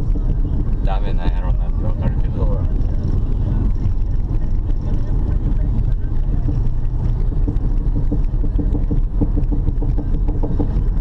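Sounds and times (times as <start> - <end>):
rhythmic clunking knock from wheel: 0.0 - 11.0
road rumble: 0.0 - 11.0.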